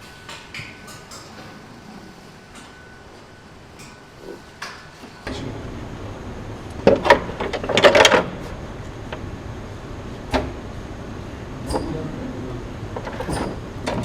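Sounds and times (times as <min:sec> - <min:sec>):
factory hall noise: 0:00.0 - 0:14.0
clacks and knocks of parts: 0:12.9 - 0:14.0.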